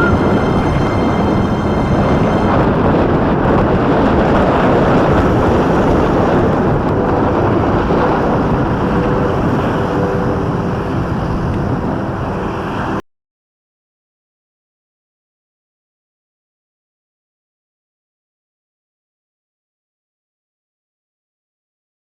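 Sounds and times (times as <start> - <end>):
road and traffic noise: 0.0 - 13.0
wind rushing over microphone: 0.0 - 13.0.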